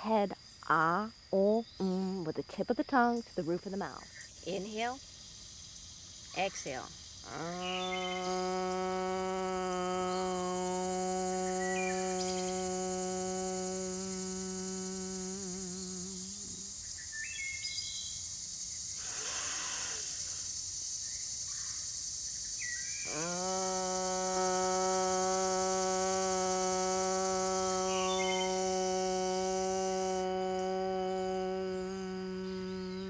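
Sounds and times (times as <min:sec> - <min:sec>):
high insect hiss: 0:00.0 - 0:33.0
person chanting a long tone: 0:07.3 - 0:16.8, 0:23.0 - 0:33.0
person breathing in: 0:19.0 - 0:20.6.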